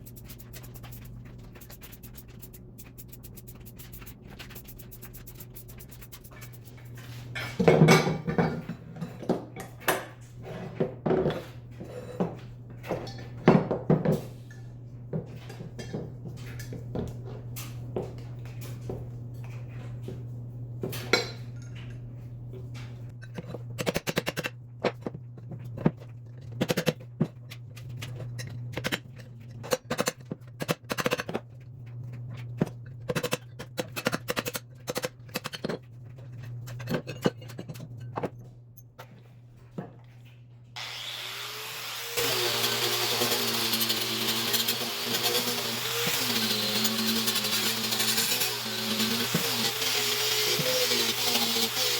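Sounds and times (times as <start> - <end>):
steady low hum: 0.0 - 13.3.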